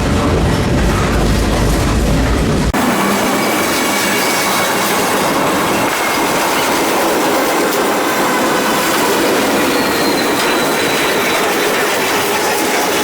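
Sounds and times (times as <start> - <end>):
train wheels on rails: 0.0 - 13.0
high wheel squeal: 3.4 - 13.0.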